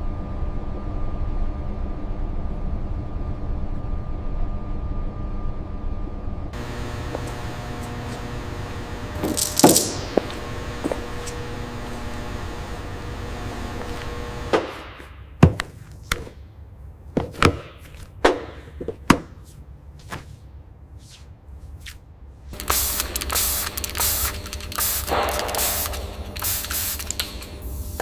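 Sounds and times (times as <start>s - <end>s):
spraying hiss in bursts: 22.6s - 28.0s.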